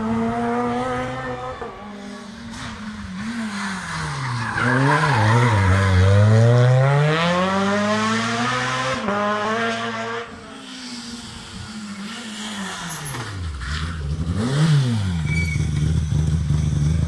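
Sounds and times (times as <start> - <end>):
rally car engine accelerating: 0.0 - 17.0.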